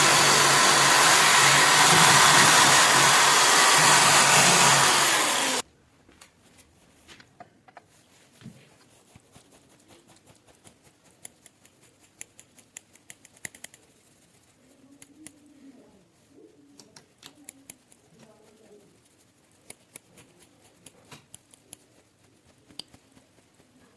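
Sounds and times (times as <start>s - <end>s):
motor whirring: 0.0s - 5.6s.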